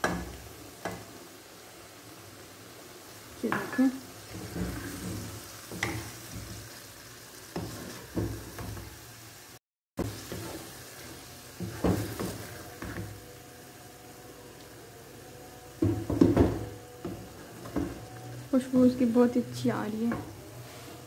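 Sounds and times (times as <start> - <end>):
food sizzling in a pan: 0.0 - 21.0
spatula scraping a pan: 4.3 - 6.8, 7.5 - 8.9, 10.0 - 13.2.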